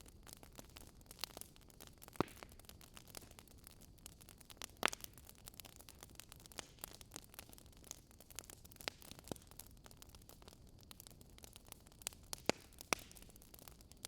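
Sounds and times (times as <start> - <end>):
faint steady hiss: 0.0 - 14.0
wood fire crackling and popping: 0.0 - 14.0.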